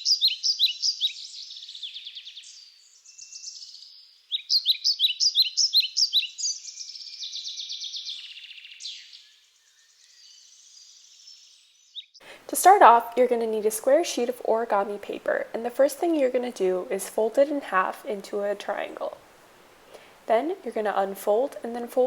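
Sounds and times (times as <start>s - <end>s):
bird chirping and trilling: 0.0s - 12.2s.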